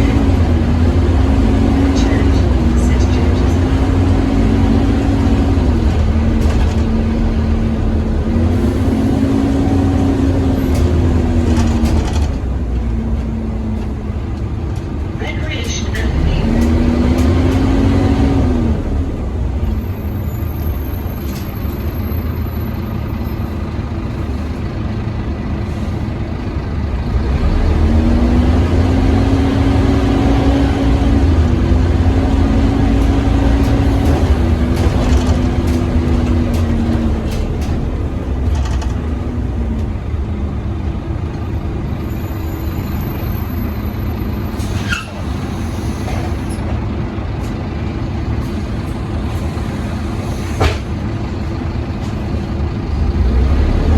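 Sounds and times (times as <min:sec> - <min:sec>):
bus engine whining: 0:00.0 - 0:53.9
air brake hiss: 0:44.6 - 0:46.6, 0:49.4 - 0:50.9.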